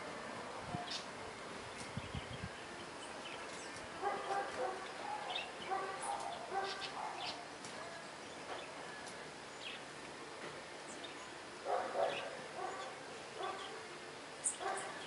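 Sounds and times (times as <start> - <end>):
small birds chirping: 0.7 - 10.0, 10.8 - 15.0
distant dog barking: 4.0 - 8.1, 11.6 - 13.8, 14.6 - 15.0.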